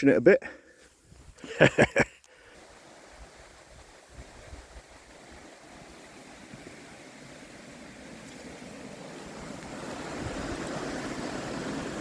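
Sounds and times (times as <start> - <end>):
bike tyres hissing through water: 1.5 - 12.0.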